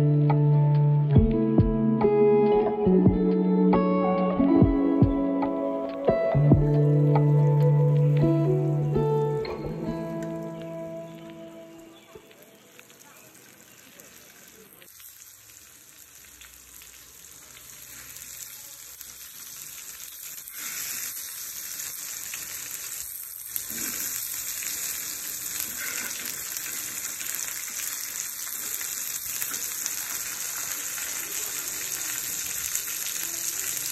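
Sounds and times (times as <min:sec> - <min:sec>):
fish sizzling in oil: 0:10.4 - 0:33.9.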